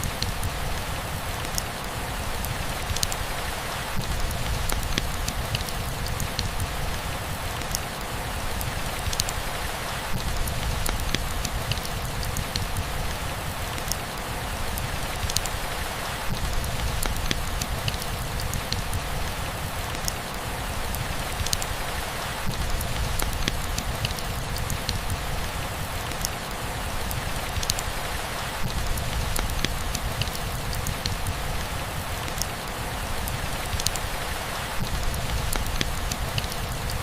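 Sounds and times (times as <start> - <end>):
steady rainfall: 0.0 - 37.0
drops ticking: 4.0 - 6.7, 16.3 - 19.0, 34.8 - 37.0.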